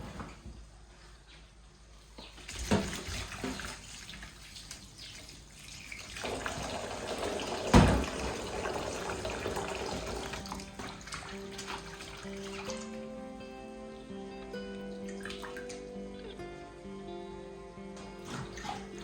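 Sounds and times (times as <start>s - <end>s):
water running from tap: 2.5s - 13.0s.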